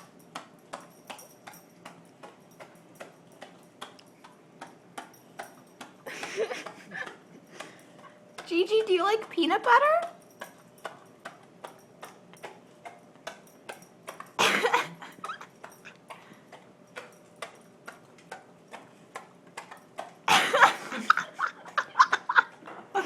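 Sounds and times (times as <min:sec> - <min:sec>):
dog licking and smacking: 0:15.1 - 0:20.2.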